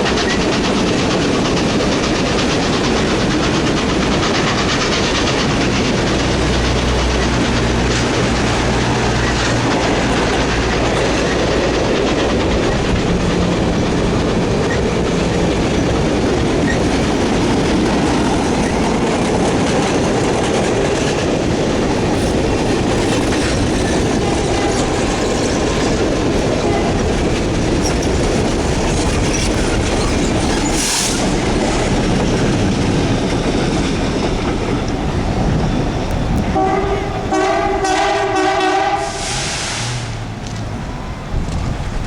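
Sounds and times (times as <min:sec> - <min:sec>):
train rumbling past on tracks: 0:00.0 - 0:42.0
multi-note train whistle: 0:36.5 - 0:39.6.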